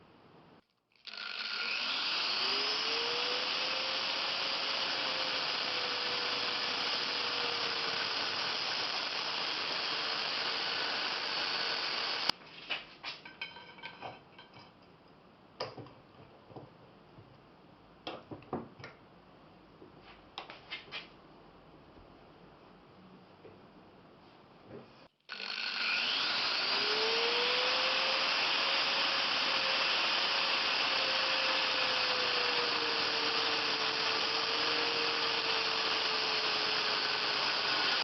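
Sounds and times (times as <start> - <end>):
electric power tool whining: 1.0 - 12.4, 25.2 - 38.0.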